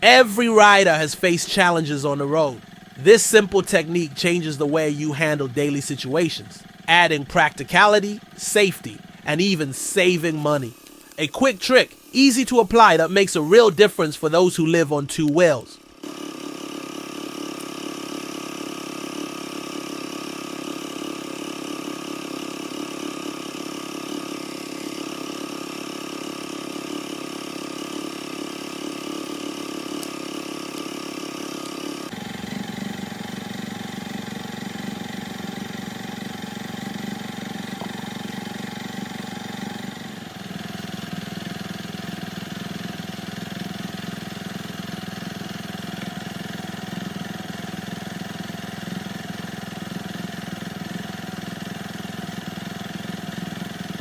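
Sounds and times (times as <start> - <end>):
motorcycle engine idling: 2.6 - 3.0, 6.5 - 6.9, 8.2 - 8.4, 9.0 - 9.3, 30.2 - 54.0.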